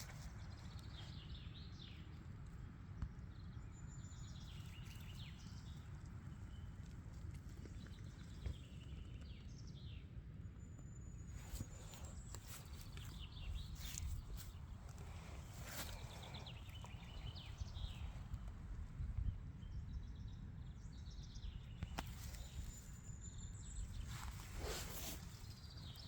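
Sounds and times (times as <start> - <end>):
faint low rumble: 0.0 - 26.0
songbirds chirping: 0.0 - 26.0.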